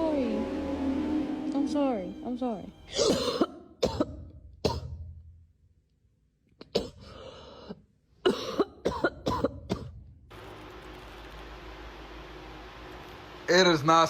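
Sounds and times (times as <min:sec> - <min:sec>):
short coughs: 0:02.9 - 0:05.0, 0:08.2 - 0:10.0.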